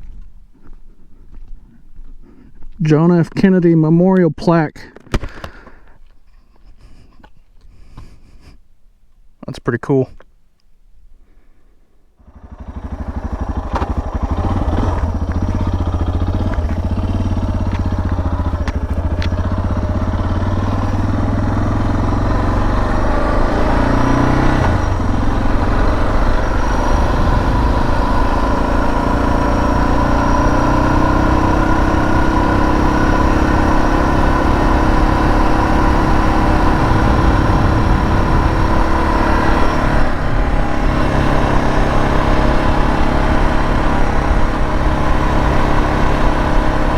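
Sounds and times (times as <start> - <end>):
motorcycle engine running: 12.2 - 46.9.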